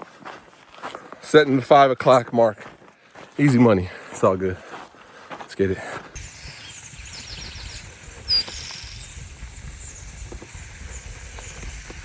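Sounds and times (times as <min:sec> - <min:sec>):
loud high whistle-like chirp: 0:06.2 - 0:12.0
small birds chirping: 0:06.2 - 0:12.0.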